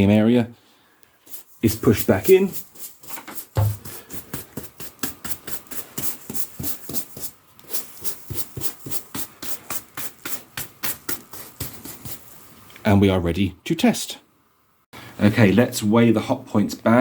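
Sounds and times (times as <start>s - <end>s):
brush sweeping carpet: 1.2s - 12.6s.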